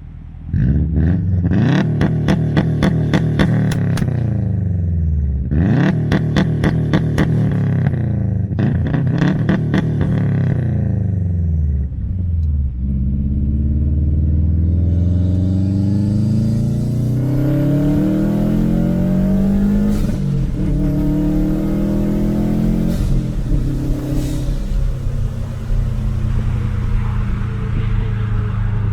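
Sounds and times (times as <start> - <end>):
car engine accelerating through gears: 0.0 - 28.9.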